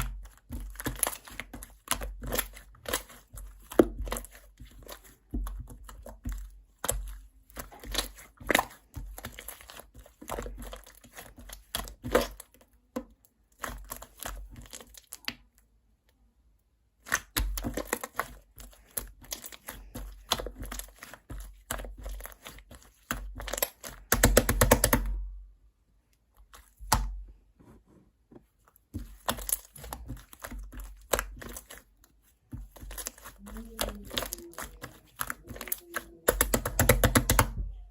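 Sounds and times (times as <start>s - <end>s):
slime crackling and popping: 29.0s - 32.0s, 32.6s - 37.5s.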